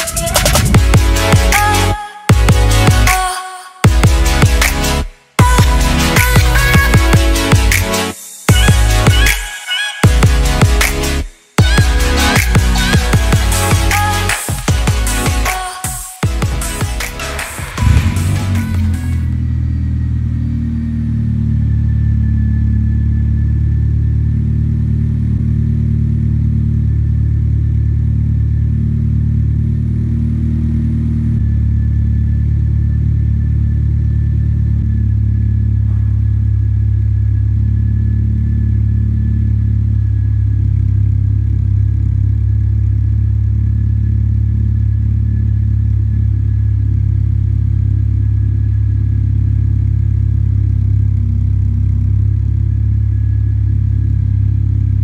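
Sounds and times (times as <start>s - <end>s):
car engine idling: 16.3s - 55.0s.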